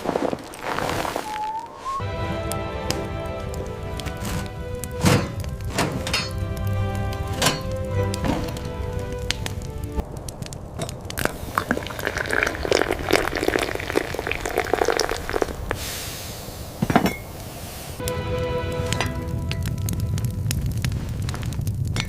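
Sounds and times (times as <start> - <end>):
steady hiss: 0.0 - 22.0
background music: 1.9 - 10.0, 18.0 - 20.8.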